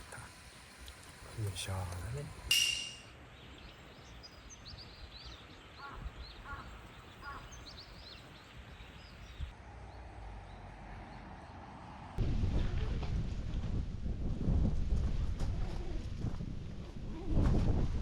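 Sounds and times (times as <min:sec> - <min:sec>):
small birds chirping: 0:00.0 - 0:09.5
faint outdoor background noise: 0:00.0 - 0:17.7.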